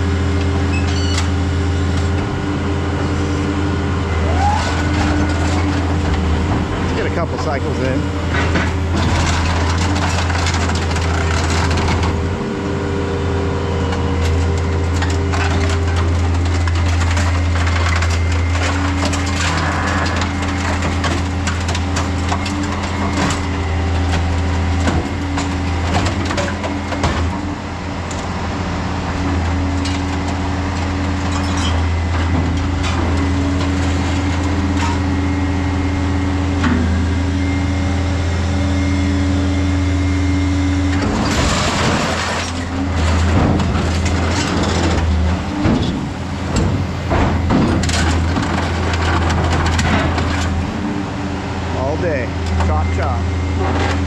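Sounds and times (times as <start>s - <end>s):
engine hum: 0.0s - 54.0s
shear crunching metal: 13.9s - 28.3s.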